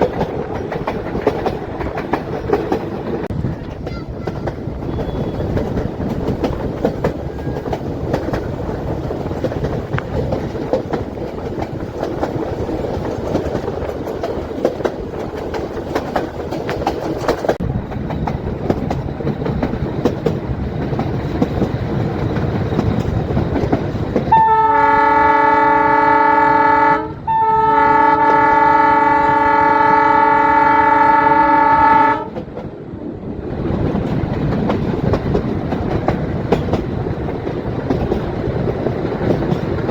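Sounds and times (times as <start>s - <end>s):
train coaches rumbling on rails: 0.0s - 39.9s
locomotive horn blasts: 4.8s - 5.5s, 24.3s - 32.4s.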